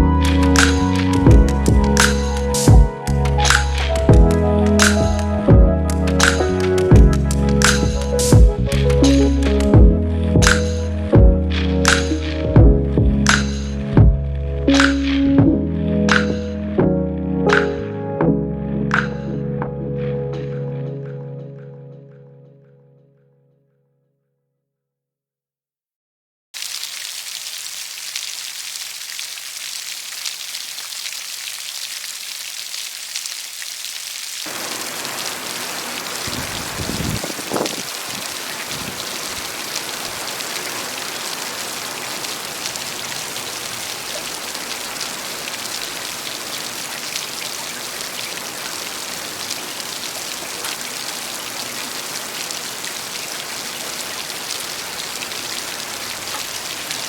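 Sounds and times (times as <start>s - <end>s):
rain falling on leaves: 0.0s - 5.3s, 5.9s - 9.8s, 26.6s - 57.0s.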